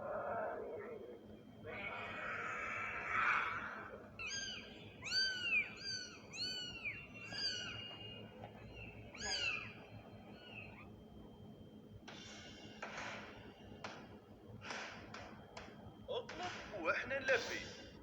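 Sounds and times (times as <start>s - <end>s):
kitten meowing: 4.2s - 10.9s.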